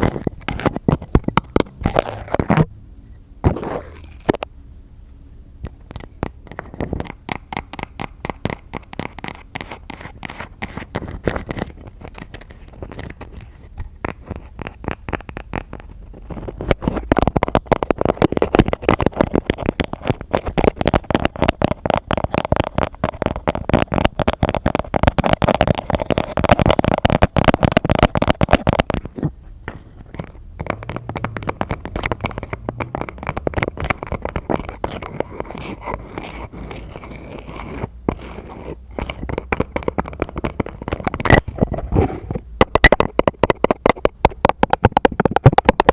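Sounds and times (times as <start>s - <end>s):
tapping and scratching on objects: 0.0s - 2.7s, 3.4s - 4.5s, 5.6s - 45.9s.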